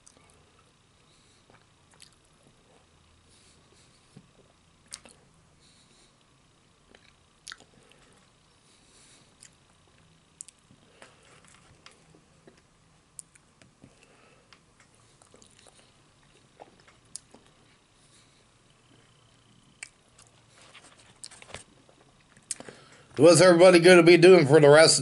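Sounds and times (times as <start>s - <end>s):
faint chewing: 0.0s - 23.1s
mouth clicks and smacks: 1.5s - 2.6s, 4.4s - 5.2s, 6.9s - 7.7s, 9.4s - 9.6s, 10.4s - 10.7s, 12.5s - 13.8s, 15.2s - 17.6s, 19.7s - 20.4s, 21.1s - 22.7s.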